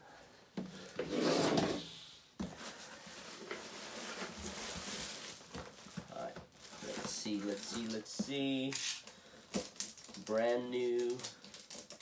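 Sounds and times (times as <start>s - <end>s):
box sliding scrape: 1.0s - 2.0s
packaging handling: 3.0s - 12.0s.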